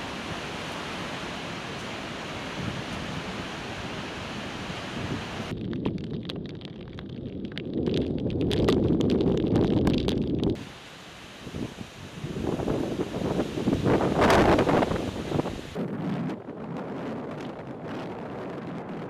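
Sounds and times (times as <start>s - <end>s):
heavy waves rushing: 0.0s - 5.5s, 10.6s - 15.8s
gusty wind buffeting microphone: 0.0s - 6.6s, 7.2s - 19.0s.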